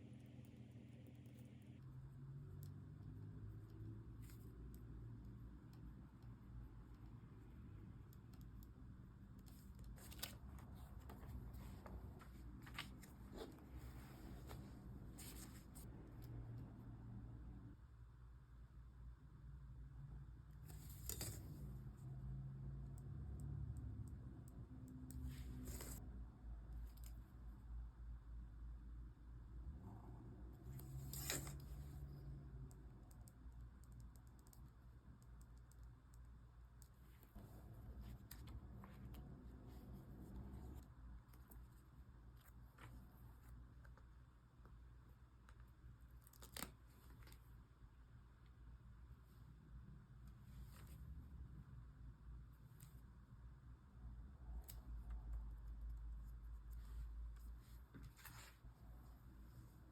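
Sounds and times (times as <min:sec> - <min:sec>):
low room hum: 0:00.0 - 0:59.9
paper rustling: 0:09.5 - 0:15.9.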